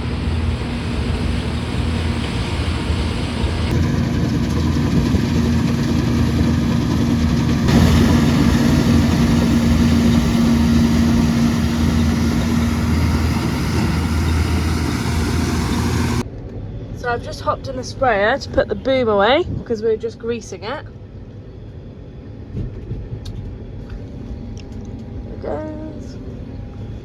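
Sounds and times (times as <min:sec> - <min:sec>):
combine harvester engine running: 0:00.0 - 0:16.2.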